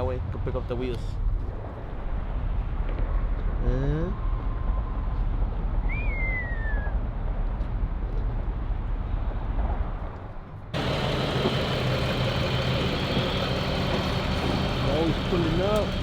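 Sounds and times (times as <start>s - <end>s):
road noise: 7.0s - 16.0s
vehicle engine rumbling: 7.3s - 16.0s.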